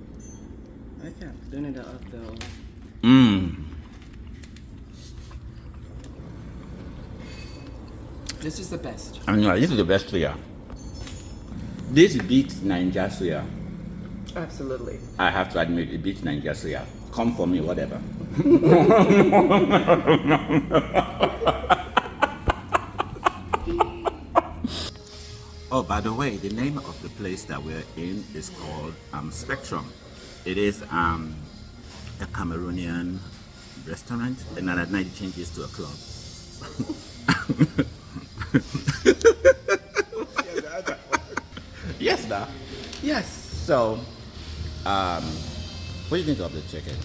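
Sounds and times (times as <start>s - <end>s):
person laughing hard: 18.3s - 24.9s, 36.7s - 42.0s.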